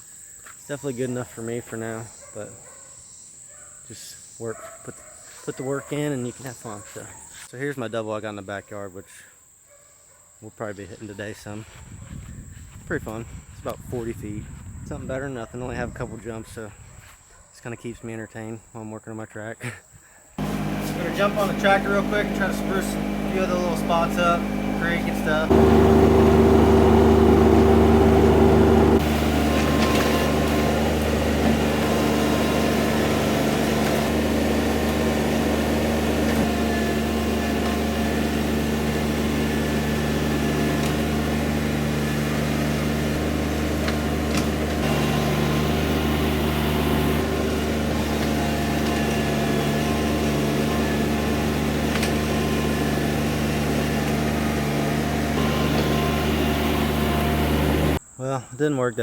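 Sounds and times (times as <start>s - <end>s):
tractor diesel engine running: 20.4s - 58.0s.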